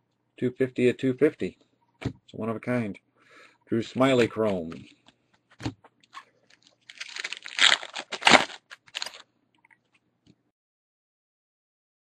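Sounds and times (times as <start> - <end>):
foil wrapper crinkling and tearing: 6.1 - 9.2.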